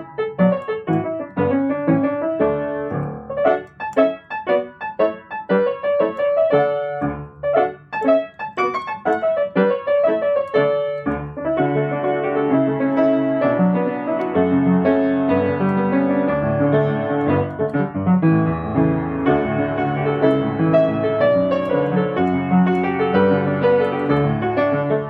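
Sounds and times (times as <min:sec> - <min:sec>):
solo piano melody: 0:00.0 - 0:25.0.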